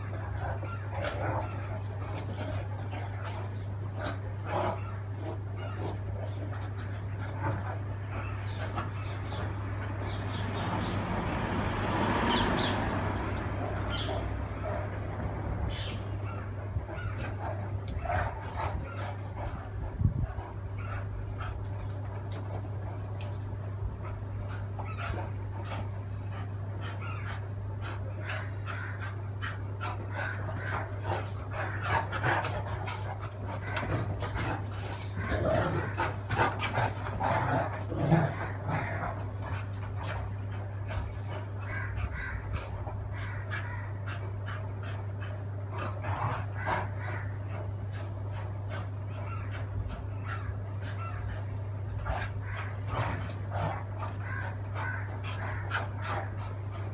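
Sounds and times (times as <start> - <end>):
dogs barking: 0.0 - 56.9
dogs panting: 0.0 - 56.9
low steady hum: 13.0 - 56.9
dogs whimpering: 20.7 - 56.9.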